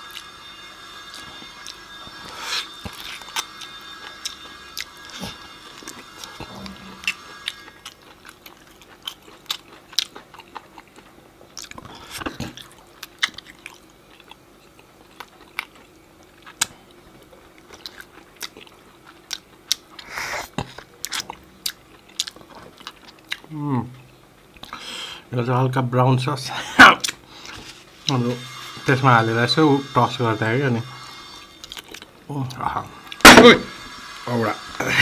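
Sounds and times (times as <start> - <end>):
chewing meat off a bone: 0.0 - 24.8.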